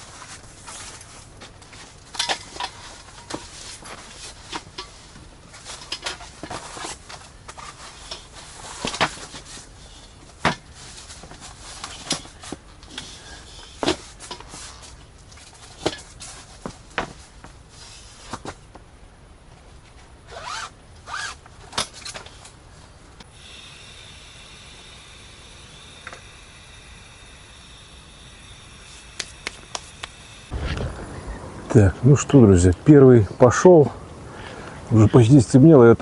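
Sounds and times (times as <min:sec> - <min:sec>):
zip-like scrapes: 0:20.3 - 0:21.4.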